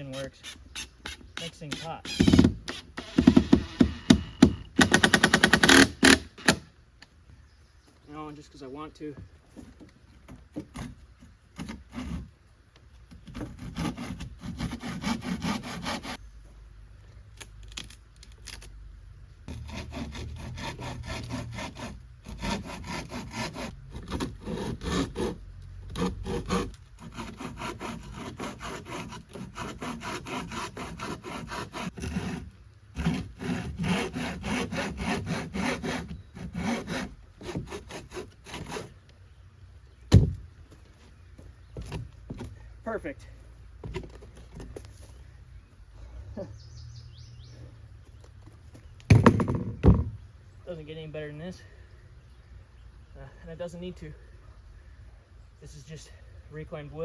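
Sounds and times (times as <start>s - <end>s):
hand saw cutting wood: 4.8s - 6.6s, 10.4s - 12.3s, 13.2s - 16.2s, 19.5s - 39.0s.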